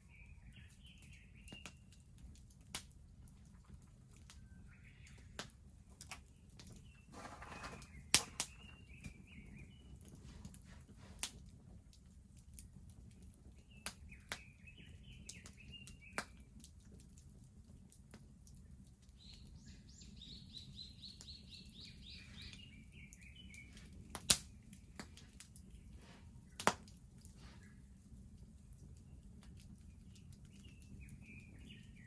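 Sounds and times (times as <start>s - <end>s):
small bird singing: 0.0s - 1.9s, 4.4s - 5.4s, 6.2s - 10.0s, 13.6s - 16.4s, 19.2s - 26.7s, 29.0s - 32.0s
bonfire crackling and popping: 0.4s - 32.0s.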